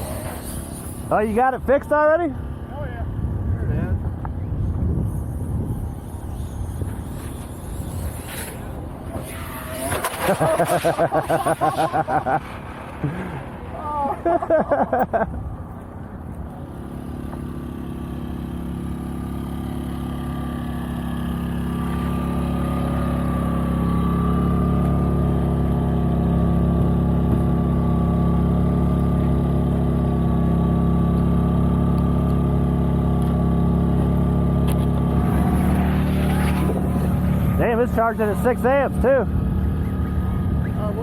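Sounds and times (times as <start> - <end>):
thin steady whine: 0.0 - 27.8.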